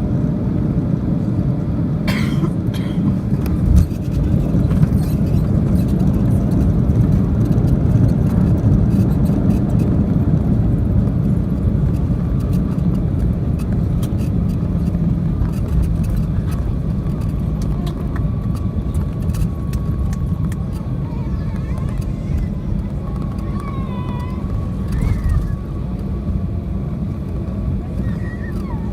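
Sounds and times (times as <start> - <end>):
aircraft cabin engine rumble: 0.0 - 28.9.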